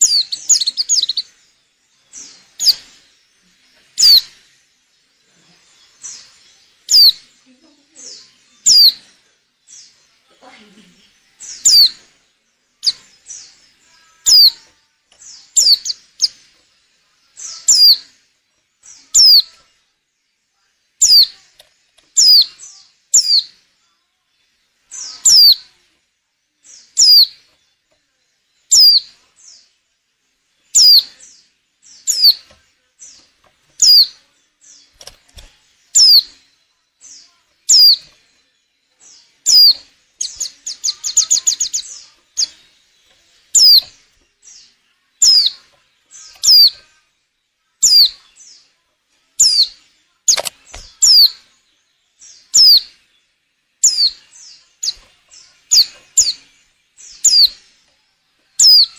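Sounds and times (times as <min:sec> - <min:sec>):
bird chattering: 0:00.0 - 0:01.2, 0:14.2 - 0:14.6, 0:15.5 - 0:16.4, 0:17.5 - 0:18.1, 0:19.1 - 0:19.6, 0:25.0 - 0:25.6, 0:36.0 - 0:36.3, 0:37.7 - 0:38.1, 0:39.4 - 0:42.6, 0:43.5 - 0:44.0, 0:45.2 - 0:46.8, 0:50.3 - 0:51.4, 0:53.8 - 0:54.2, 0:57.2 - 0:57.6, 0:58.6 - 0:58.9.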